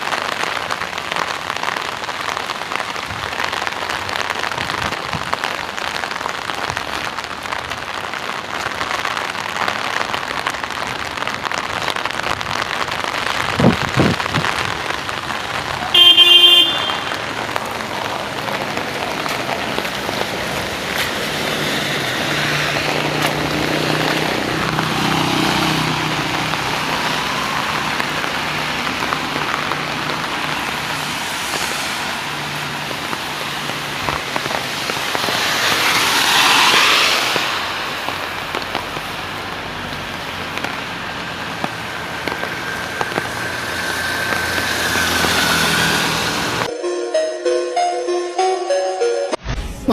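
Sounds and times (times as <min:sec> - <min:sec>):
steady rain falling: 0:00.0 - 0:46.7
vehicle engine humming: 0:14.1 - 0:35.1
car horn: 0:15.9 - 0:17.4.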